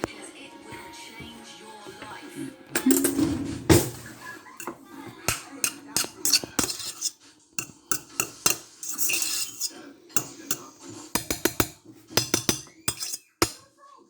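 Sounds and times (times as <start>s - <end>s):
utensils knocking against pots: 2.7s - 13.7s
utensil scraping: 2.8s - 13.6s.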